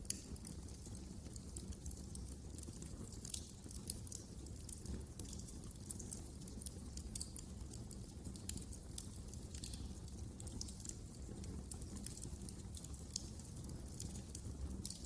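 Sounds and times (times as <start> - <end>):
fire crackling and popping: 0.0 - 15.0
low rumble of burning fire: 0.0 - 15.0.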